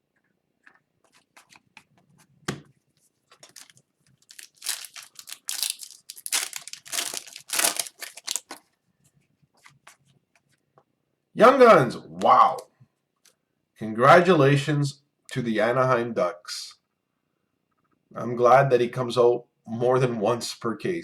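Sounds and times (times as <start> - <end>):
wrapper crinkling and tearing: 3.4 - 8.6.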